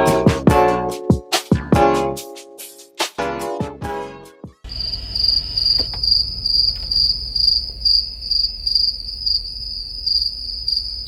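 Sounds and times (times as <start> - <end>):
insect trilling: 4.7 - 11.0
low rumble: 4.7 - 11.0.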